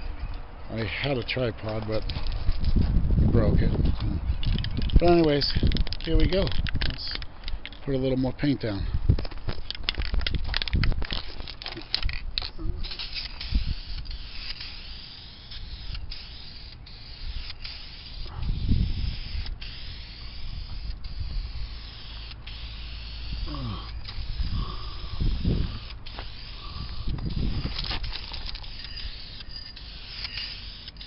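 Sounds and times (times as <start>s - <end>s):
aerosol can spraying hiss: 13.0s - 27.7s.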